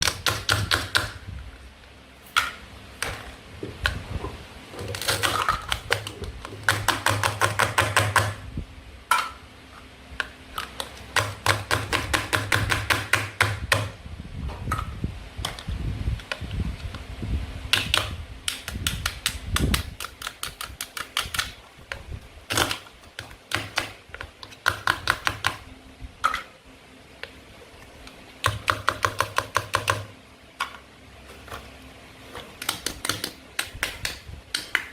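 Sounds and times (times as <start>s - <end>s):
sharp taps and knocks: 32.5s - 34.9s.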